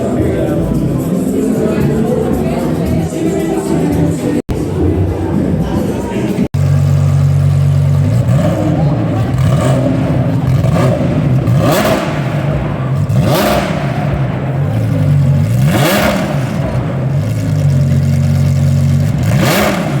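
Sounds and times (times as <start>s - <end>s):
engine humming nearby: 0.0s - 20.0s
cars driving past at speed: 7.1s - 20.0s.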